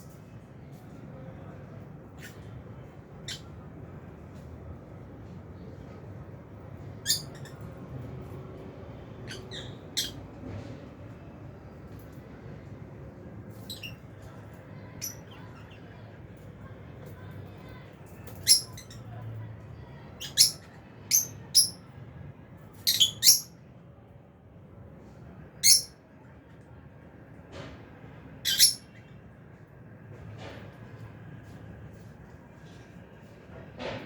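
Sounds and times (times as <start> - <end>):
birds chirping and squawking: 9.2 - 10.3, 18.3 - 19.0, 25.6 - 25.9, 28.4 - 29.0.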